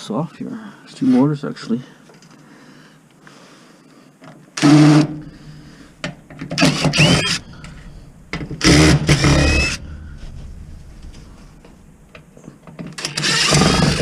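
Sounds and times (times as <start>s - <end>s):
power driver whirring: 6.6s - 10.1s, 13.0s - 14.0s.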